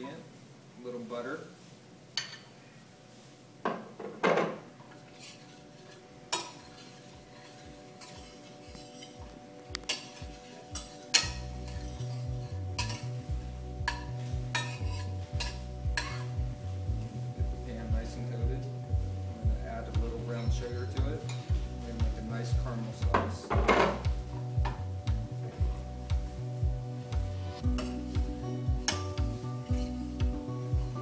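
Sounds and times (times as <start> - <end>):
metal utensil scraping a pan: 4.9 - 16.4, 20.3 - 24.5, 27.6 - 31.0
background music with beat: 7.2 - 31.0.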